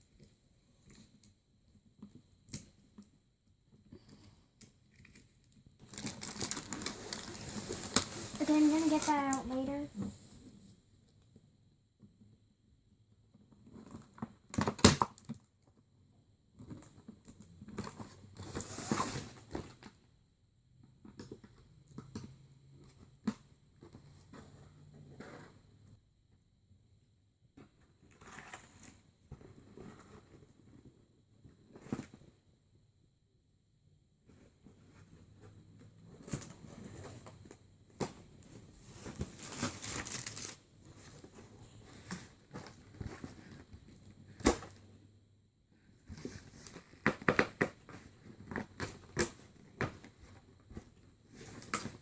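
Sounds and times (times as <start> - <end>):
packaging crinkling: 5.8 - 9.5, 39.0 - 40.6
plastic and cardboard crinkling: 5.8 - 10.1, 36.2 - 44.8.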